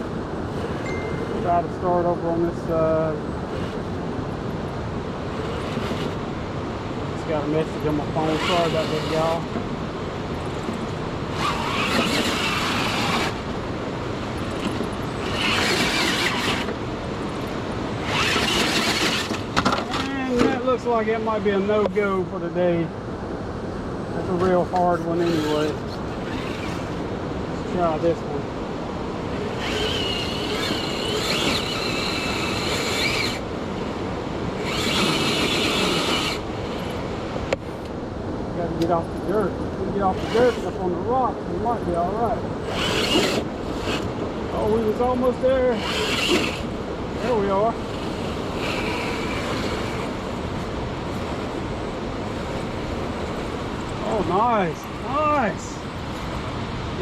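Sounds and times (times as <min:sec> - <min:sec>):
noisy background: 0:00.0 - 0:57.0
electric motor whirring: 0:07.6 - 0:09.5, 0:10.4 - 0:13.6, 0:14.3 - 0:20.0, 0:24.9 - 0:27.1, 0:29.3 - 0:37.6, 0:40.0 - 0:40.9, 0:42.6 - 0:56.5.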